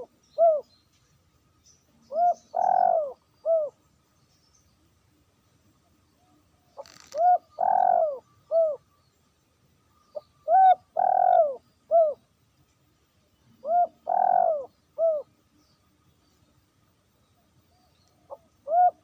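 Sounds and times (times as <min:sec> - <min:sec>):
dove cooing: 0:00.0 - 0:00.7, 0:02.1 - 0:03.8, 0:06.8 - 0:08.8, 0:10.4 - 0:12.2, 0:13.6 - 0:15.3, 0:18.3 - 0:19.0.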